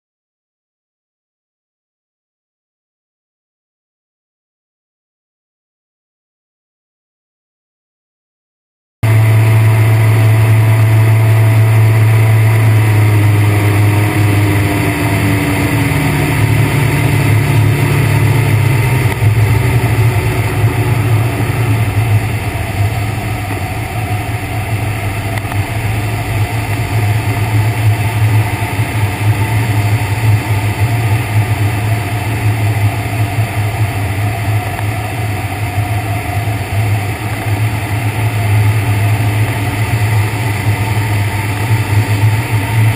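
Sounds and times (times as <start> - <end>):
ultralight aircraft engine droning: 9.0 - 42.9.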